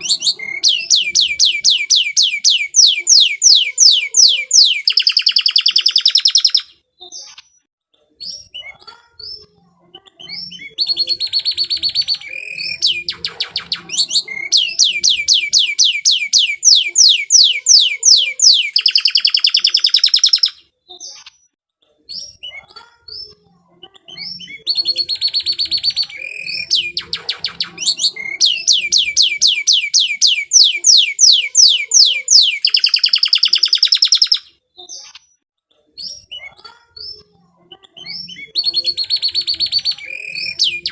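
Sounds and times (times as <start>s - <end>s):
canary singing: 0.0s - 7.6s, 8.2s - 21.5s, 22.1s - 35.4s, 36.0s - 40.9s.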